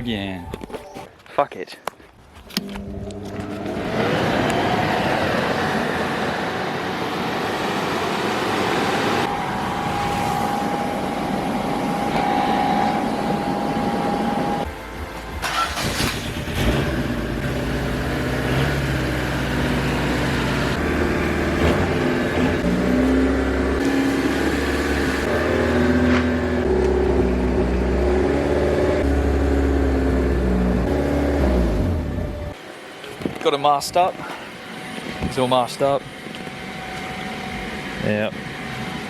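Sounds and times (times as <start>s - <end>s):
low motor hum: 2.6s - 14.9s, 16.4s - 32.6s.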